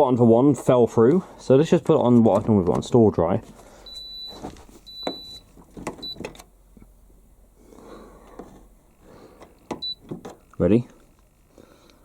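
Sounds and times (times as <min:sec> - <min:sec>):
dryer control panel beeping: 0:03.9 - 0:06.5, 0:09.7 - 0:10.4.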